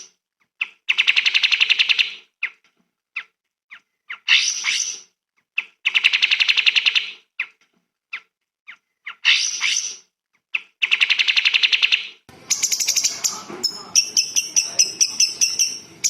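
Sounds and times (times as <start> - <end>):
songbird singing trills: 10.8 - 16.0.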